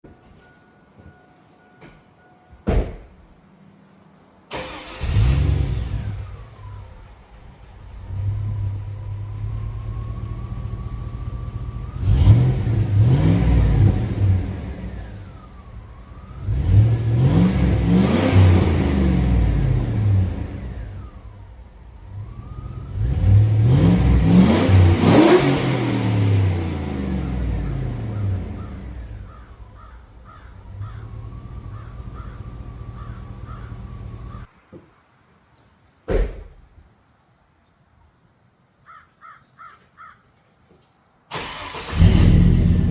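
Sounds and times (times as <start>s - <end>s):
engine exhaust idling and revving: 5.0s - 34.5s, 41.5s - 42.9s.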